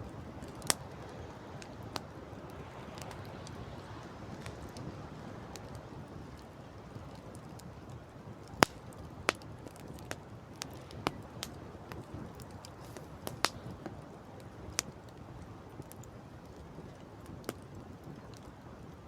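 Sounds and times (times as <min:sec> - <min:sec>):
campfire crackling and popping: 0:00.0 - 0:19.0
wind and sea rushing: 0:00.0 - 0:19.0.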